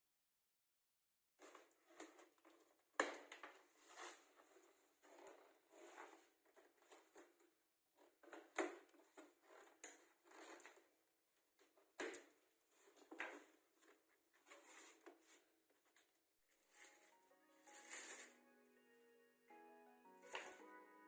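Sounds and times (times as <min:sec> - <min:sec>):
packaging rustling and crinkling: 0:16.5 - 0:18.4.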